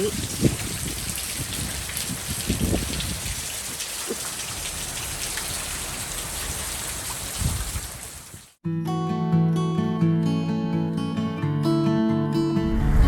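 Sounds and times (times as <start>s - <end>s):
heavy rain falling: 0.0s - 8.6s.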